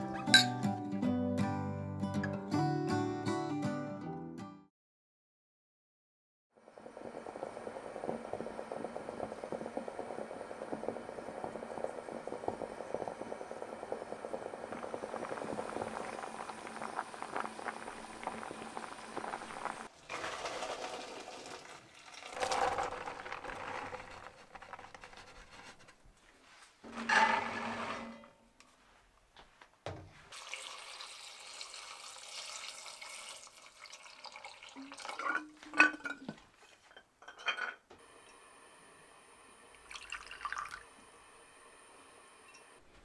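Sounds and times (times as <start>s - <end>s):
kitchen handling sounds: 0.0s - 0.6s, 26.7s - 28.6s, 35.2s - 37.9s
pot of beans boiling: 6.6s - 25.7s, 30.3s - 36.9s, 38.0s - 42.8s.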